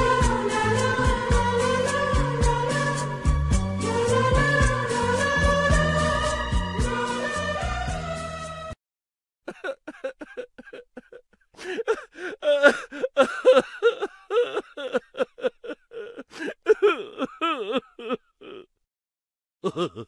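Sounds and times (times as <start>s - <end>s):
person laughing: 9.5s - 18.8s, 19.6s - 20.0s.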